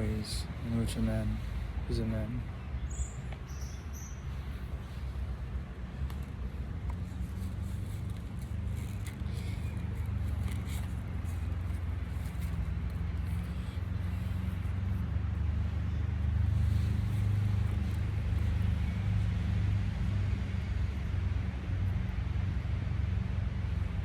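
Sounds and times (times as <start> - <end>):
low rumble of road traffic: 0.0 - 24.0.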